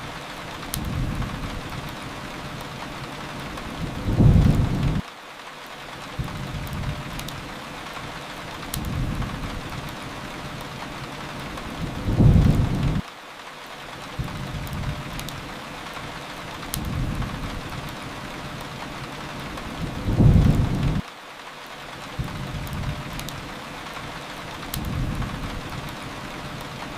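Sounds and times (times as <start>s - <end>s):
fireplace crackling: 0.0s - 26.9s
steady rain: 0.0s - 26.9s
low rumble of thunder: 3.7s - 5.0s, 8.8s - 9.9s, 11.6s - 13.0s, 16.8s - 17.9s, 19.4s - 21.0s, 24.8s - 26.0s.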